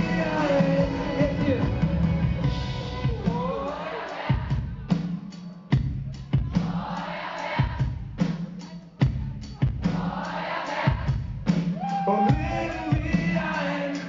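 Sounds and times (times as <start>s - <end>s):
driving drum beat: 0.0s - 14.0s
live pop-rock band: 0.0s - 14.0s.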